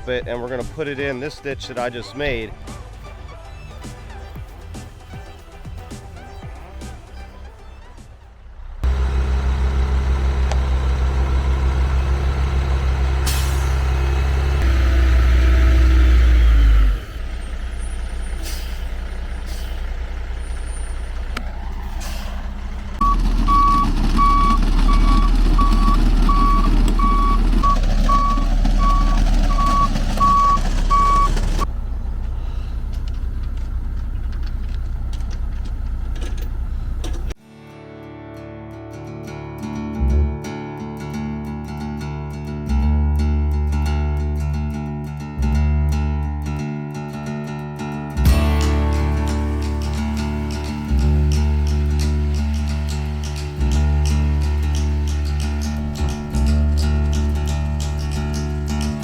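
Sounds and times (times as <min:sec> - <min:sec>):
heavy diesel engine running: 0:08.4 - 0:37.4, 0:48.2 - 0:59.0
back-up alarm beeping: 0:23.0 - 0:31.7.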